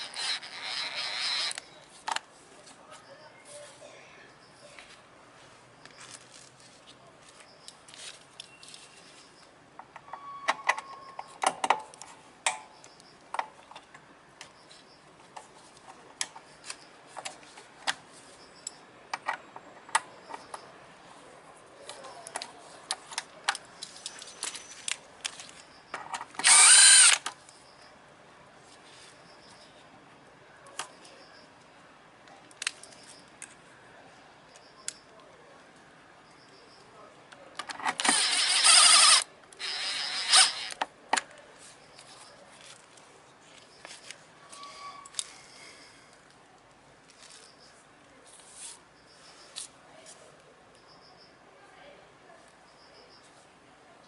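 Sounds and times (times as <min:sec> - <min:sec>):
power tool burst: 0:38.0 - 0:40.7.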